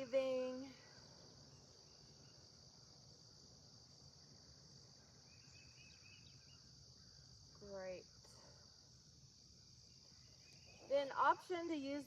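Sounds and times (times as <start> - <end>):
insects trilling: 0.0 - 12.0
faint bird chirps: 5.1 - 7.7, 9.8 - 11.2.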